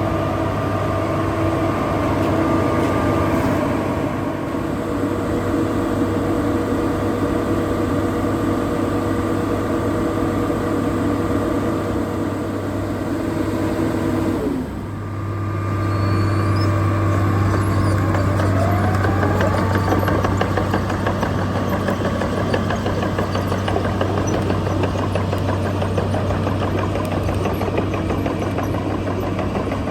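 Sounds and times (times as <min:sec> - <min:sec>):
paver diesel engine running: 0:00.0 - 0:29.9.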